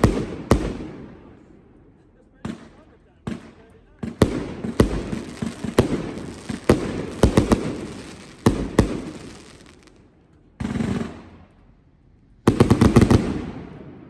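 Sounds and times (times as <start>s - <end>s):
firework bangs: 0.0s - 1.3s, 2.4s - 11.7s, 12.4s - 14.0s
firework crackle: 4.0s - 10.1s.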